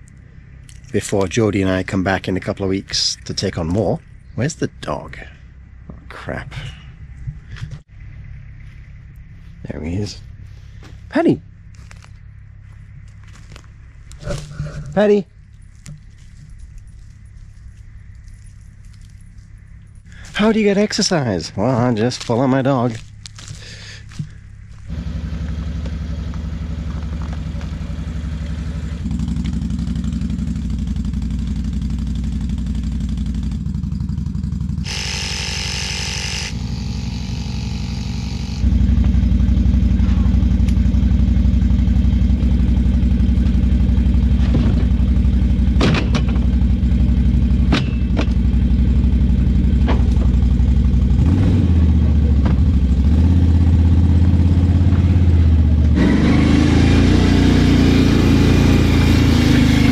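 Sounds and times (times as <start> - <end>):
small vehicle engine running: 21.6 - 59.9.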